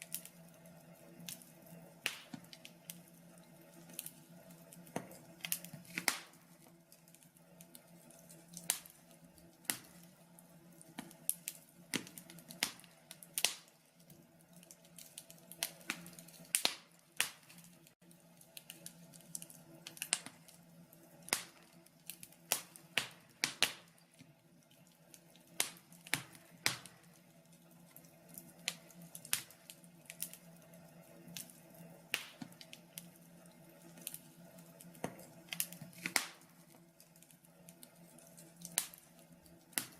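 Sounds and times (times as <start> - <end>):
fire pops and snaps: 0.0 - 39.9
wood fire crackling: 0.0 - 39.9.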